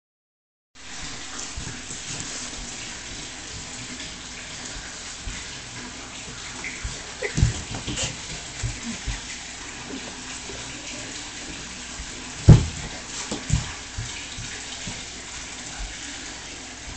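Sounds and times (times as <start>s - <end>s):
water running from a tap: 0.8s - 16.9s
low knocks and bumps: 12.4s - 15.1s.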